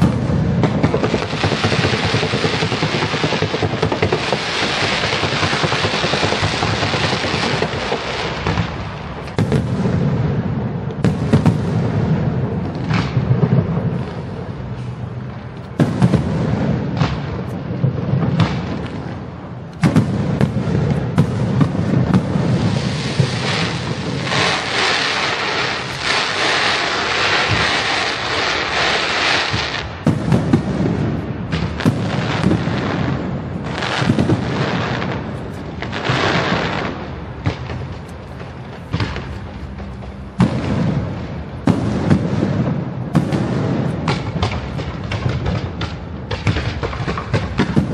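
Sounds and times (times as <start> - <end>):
firework shells booming: 0.0 - 47.9
fireworks crackling: 0.0 - 47.9.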